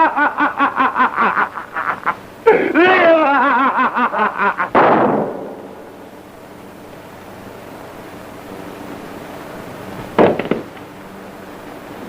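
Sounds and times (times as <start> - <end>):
man laughing wildly: 0.0 - 4.9
film hiss: 0.0 - 12.0
gunshot: 4.8 - 5.7.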